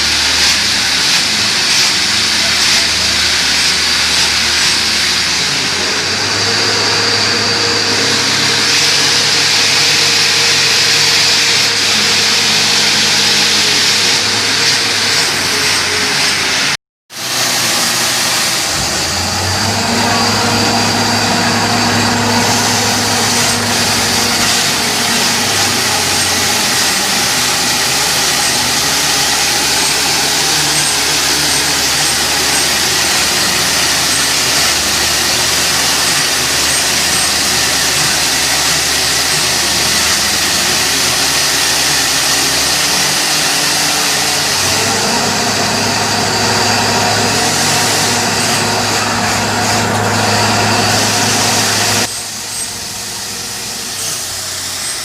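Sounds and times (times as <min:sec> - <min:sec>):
drilling rig engine din: 0:00.0 - 0:55.0.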